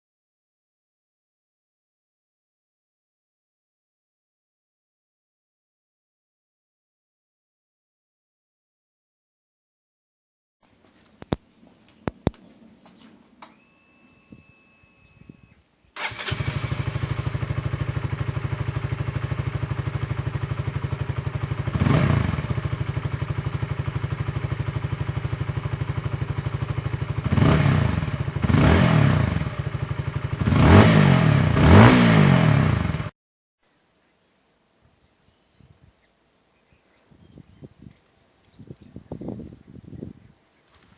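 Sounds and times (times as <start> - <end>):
motorcycle throttle blips: 11.2 - 33.1
motorcycle engine idling: 16.0 - 31.6.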